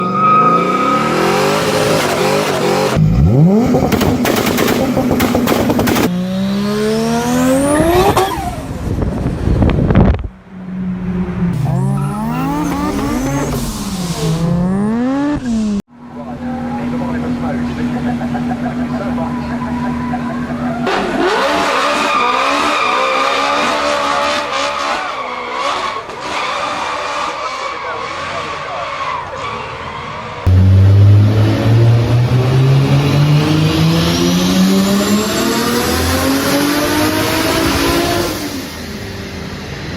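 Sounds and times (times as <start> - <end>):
car engines revving: 0.0 - 39.9
exhaust pops: 3.6 - 6.1
high rising whine: 30.5 - 39.9.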